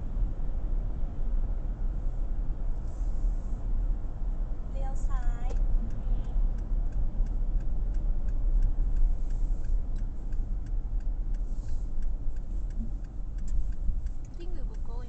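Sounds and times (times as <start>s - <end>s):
car road and engine rumble: 0.0s - 15.0s
turn signal ticking: 4.2s - 15.0s.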